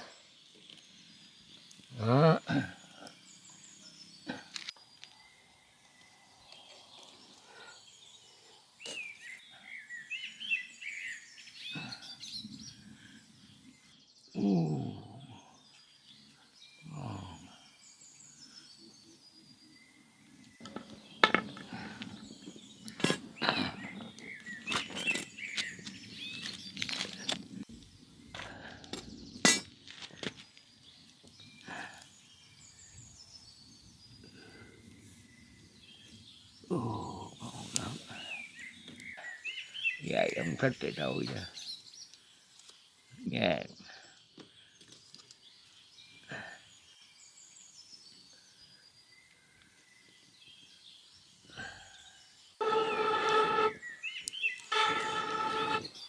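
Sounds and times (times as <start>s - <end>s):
birds chirping: 0.0s - 56.0s
low falling drawn-out calls: 52.6s - 53.8s.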